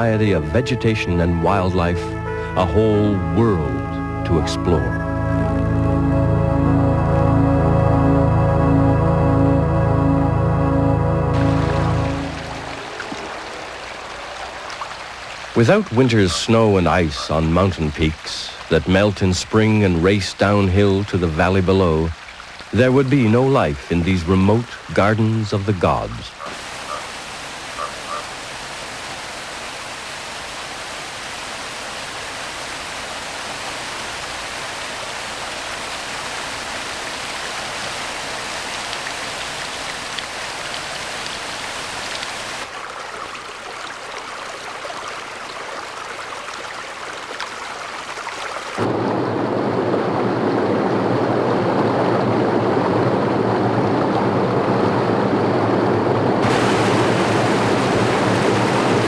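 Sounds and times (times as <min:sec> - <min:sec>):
rushing stream water: 0:11.2 - 0:49.5, 0:56.4 - 0:59.0.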